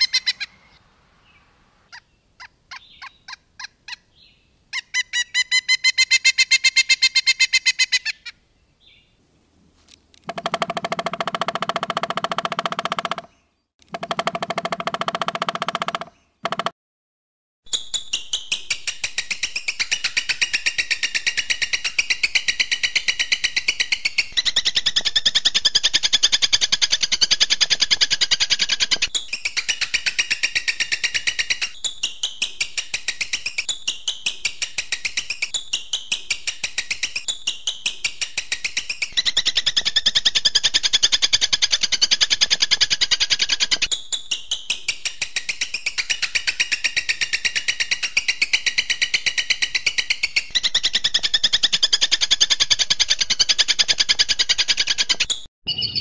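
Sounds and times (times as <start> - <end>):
rapid high bird chirping: 0.0 - 8.3, 10.3 - 13.4, 50.4 - 56.0.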